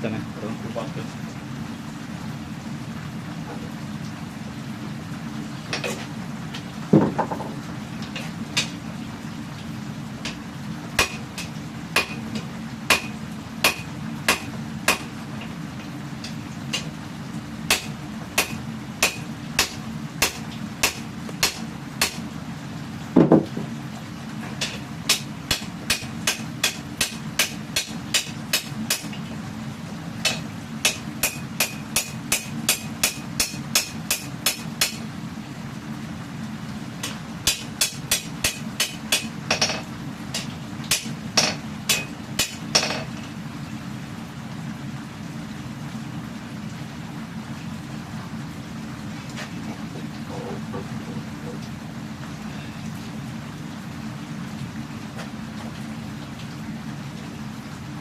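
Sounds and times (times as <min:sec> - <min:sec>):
steady low hum: 0:00.0 - 0:58.0
dull heavy knock: 0:06.9 - 0:07.6, 0:23.2 - 0:23.7
hammer striking metal on anvil: 0:11.0 - 0:12.2, 0:12.9 - 0:15.1, 0:17.7 - 0:22.2, 0:24.6 - 0:29.1, 0:30.2 - 0:35.0, 0:37.4 - 0:39.8, 0:40.4 - 0:43.1
hammer striking blade on anvil: 0:17.7 - 0:22.2, 0:37.5 - 0:39.8, 0:40.4 - 0:43.0.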